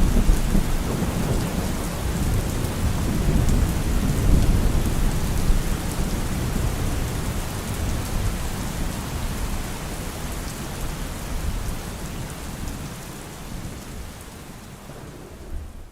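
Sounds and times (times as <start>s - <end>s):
thunder rumbling: 0.0s - 7.0s, 13.6s - 15.9s
rain falling: 0.0s - 15.9s.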